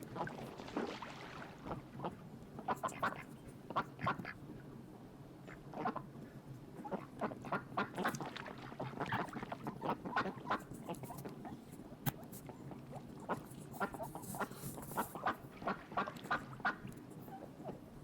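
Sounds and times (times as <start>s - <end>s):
duck quacking: 2.7s - 4.4s, 9.0s - 11.1s.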